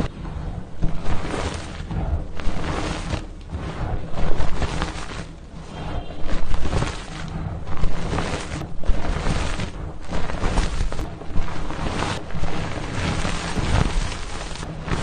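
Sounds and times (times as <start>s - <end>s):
chalk blocks crunching by hand: 4.1s - 15.0s.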